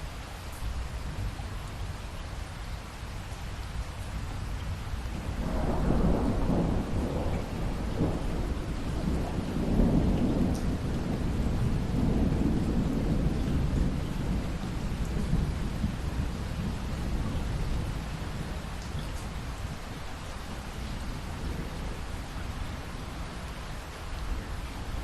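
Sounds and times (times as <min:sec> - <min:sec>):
steady rain: 0:00.0 - 0:25.0
rolling thunder: 0:05.2 - 0:19.8.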